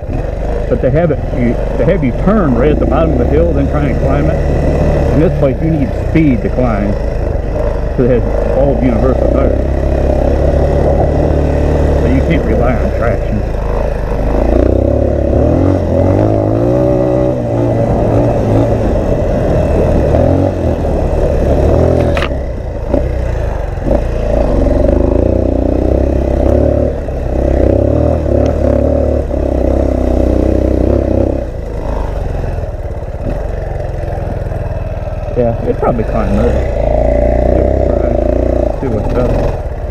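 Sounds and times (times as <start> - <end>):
motorcycle engine revving: 0.0 - 39.9
wind buffeting microphone: 15.4 - 23.0.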